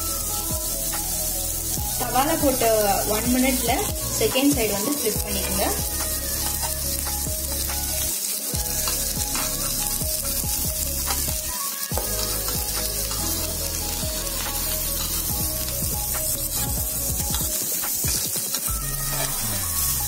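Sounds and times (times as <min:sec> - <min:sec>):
fruit slices sizzling in hot fat: 0:00.0 - 0:20.0
metal spatula scraping pan: 0:12.2 - 0:15.8.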